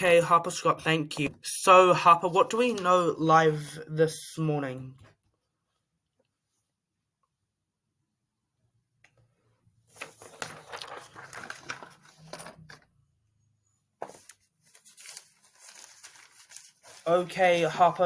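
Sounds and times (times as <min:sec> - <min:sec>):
rustling crinkling handling noise: 0:09.9 - 0:12.9, 0:14.0 - 0:18.0.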